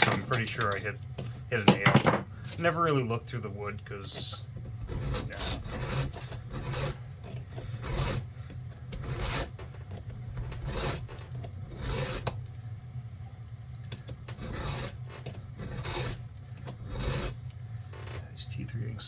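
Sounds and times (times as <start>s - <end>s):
steady low hum: 0.0s - 19.0s
hand file rasping on saw chain: 4.1s - 8.3s, 8.9s - 9.7s, 10.3s - 12.4s, 14.3s - 17.4s.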